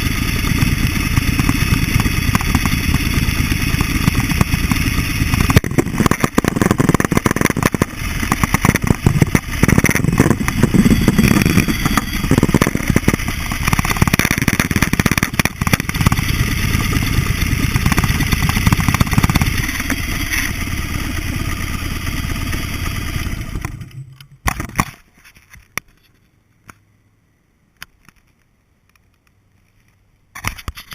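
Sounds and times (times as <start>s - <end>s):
motorcycle engine revving: 0.0s - 24.4s
sharp knocks: 17.7s - 20.0s.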